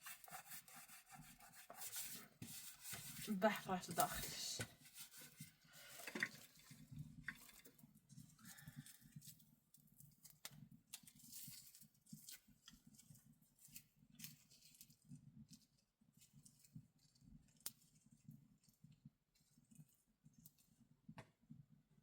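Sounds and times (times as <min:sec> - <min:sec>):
soft rustling: 0:00.0 - 0:10.3.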